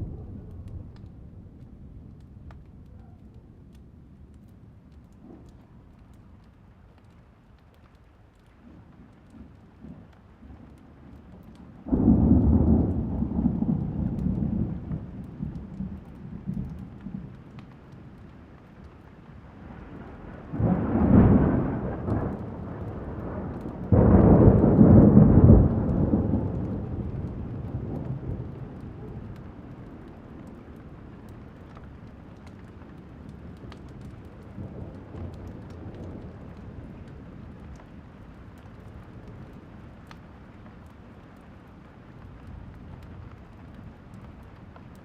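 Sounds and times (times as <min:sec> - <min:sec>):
thunder claps and rumbles: 0:00.0 - 0:03.4, 0:08.4 - 0:41.0
steady rain: 0:00.0 - 0:45.0.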